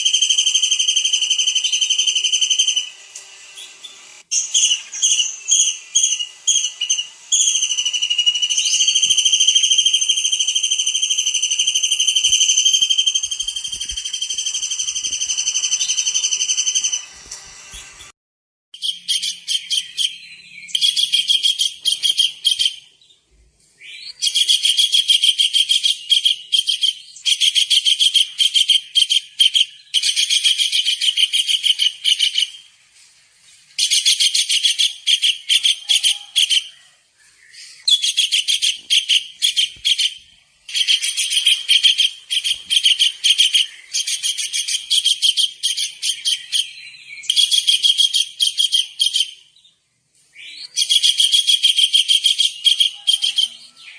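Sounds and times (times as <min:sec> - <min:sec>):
kingfisher high-pitched trilling: 0:04.4 - 0:17.1.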